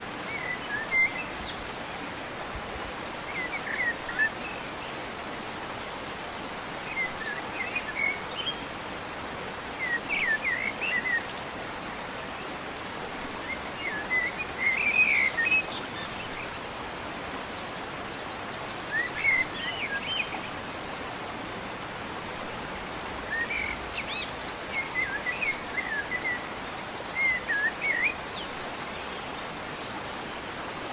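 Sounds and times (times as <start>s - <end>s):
steady outdoor hiss: 0.0s - 30.9s
small birds chirping: 12.3s - 20.6s.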